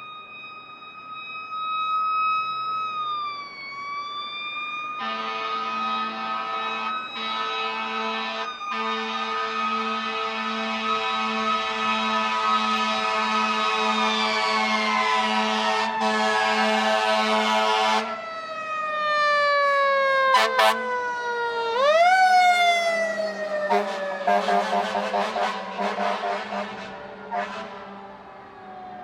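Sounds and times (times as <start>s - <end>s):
fire engine siren wailing: 0.0s - 29.0s
short horn blasts: 23.7s - 27.8s.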